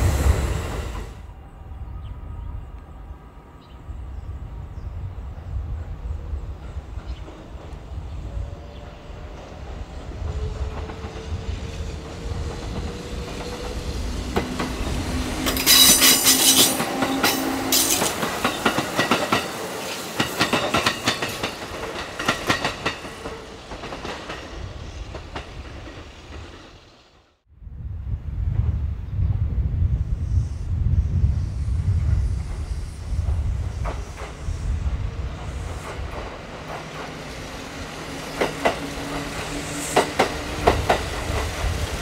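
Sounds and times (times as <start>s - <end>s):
train wheels clattering: 12.0s - 26.6s.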